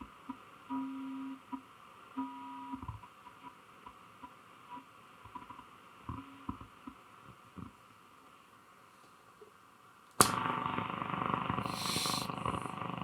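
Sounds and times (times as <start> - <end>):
radio static and crackle: 10.2 - 13.0
radio whistles: 11.6 - 12.5.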